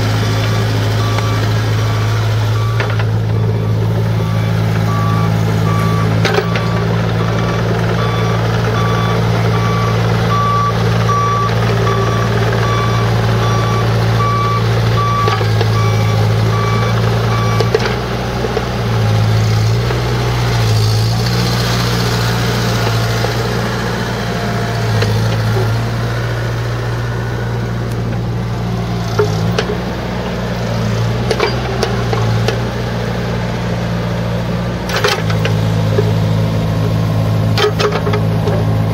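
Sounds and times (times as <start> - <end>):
diesel engine running: 0.0 - 38.9
travel alarm beeping: 0.4 - 17.7.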